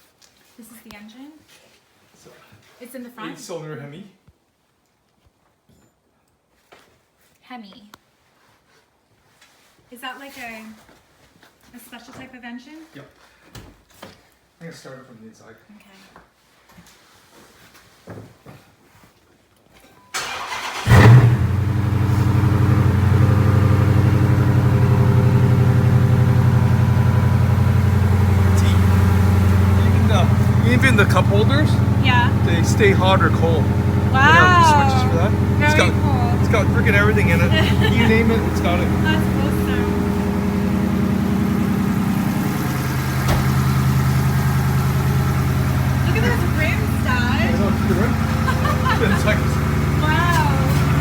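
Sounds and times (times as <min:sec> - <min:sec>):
starter cranking engine: 0:20.2 - 0:51.0
car engine revving and idling: 0:20.3 - 0:51.0.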